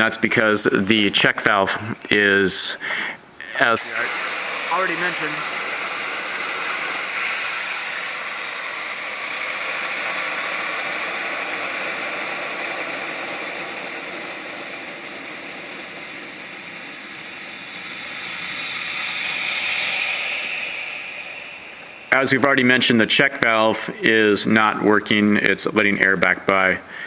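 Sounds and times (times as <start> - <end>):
compressed air hissing: 2.8 - 24.2.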